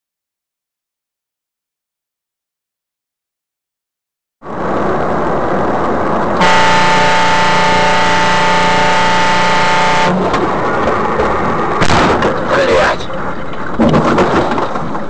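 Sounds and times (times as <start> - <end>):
road traffic noise: 4.4 - 15.0
car horn held: 6.4 - 10.2.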